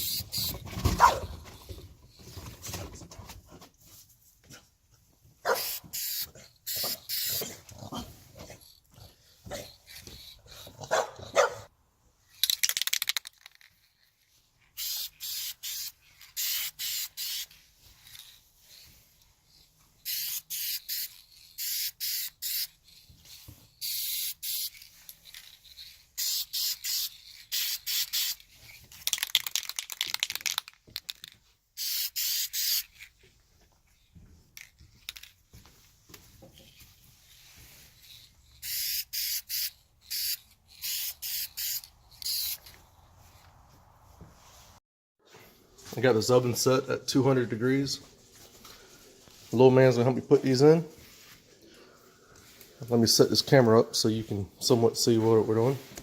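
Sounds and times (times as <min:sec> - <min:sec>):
spray paint can hissing: 0:00.0 - 0:00.6, 0:05.6 - 0:07.6, 0:14.8 - 0:18.8, 0:20.0 - 0:30.6, 0:31.8 - 0:33.0, 0:37.9 - 0:42.8.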